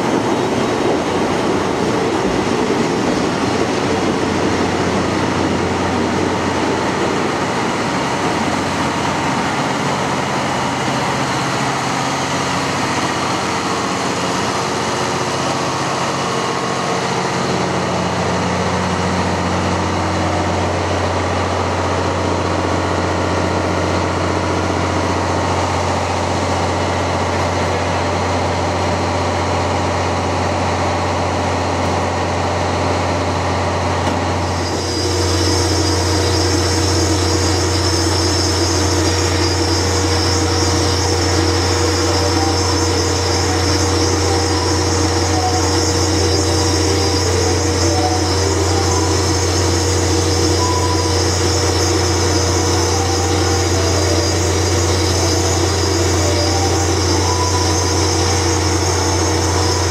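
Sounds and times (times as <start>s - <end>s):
train engine hum: 0.0s - 59.9s
high hiss: 34.4s - 59.9s.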